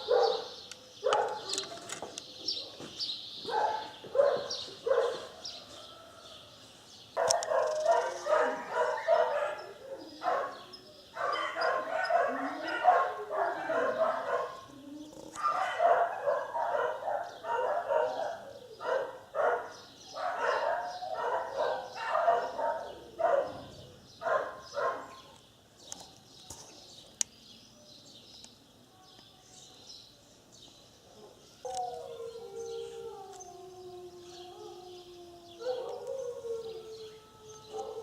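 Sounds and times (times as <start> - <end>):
dogs barking rapidly: 0.0 - 1.7, 2.6 - 5.4, 7.2 - 10.6, 11.2 - 14.7, 15.4 - 25.4, 35.6 - 36.4.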